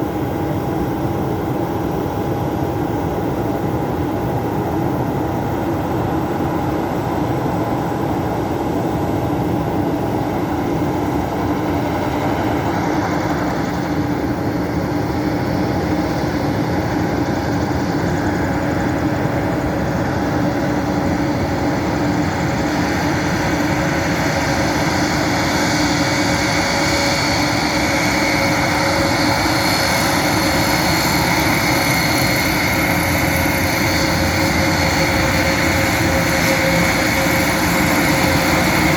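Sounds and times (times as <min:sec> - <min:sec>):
turboprop engines droning: 0:00.0 - 0:38.9
high-pitched engine hiss: 0:09.9 - 0:38.9.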